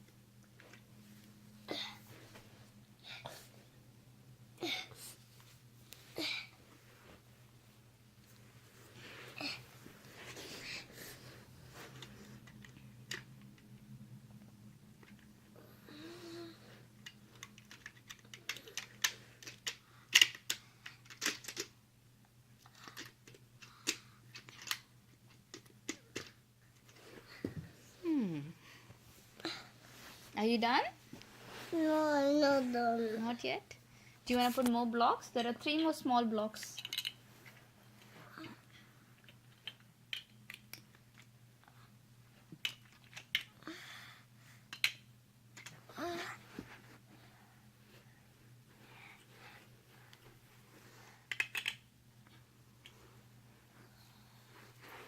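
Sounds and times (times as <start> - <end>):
toy blocks clicking together: 17.0 - 21.7, 22.6 - 24.8, 36.7 - 37.2, 39.2 - 41.3, 42.6 - 43.5, 44.7 - 45.0, 51.3 - 51.8.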